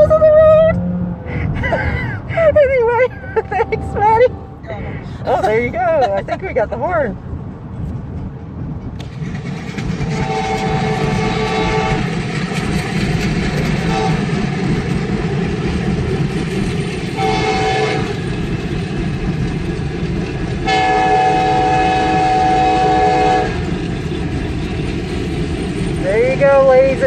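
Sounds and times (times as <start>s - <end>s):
low rumble: 0.0s - 27.0s
locomotive air horn: 10.1s - 12.1s, 13.8s - 14.3s, 17.2s - 18.2s, 20.6s - 23.6s.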